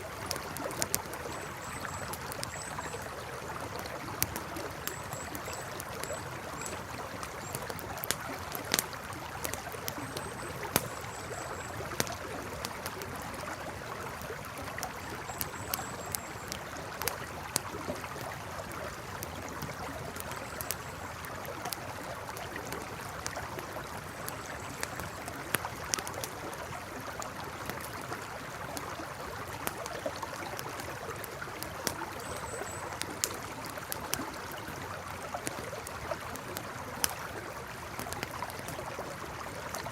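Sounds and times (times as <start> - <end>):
campfire crackling and popping: 0.0 - 39.9
river flowing: 0.0 - 39.9.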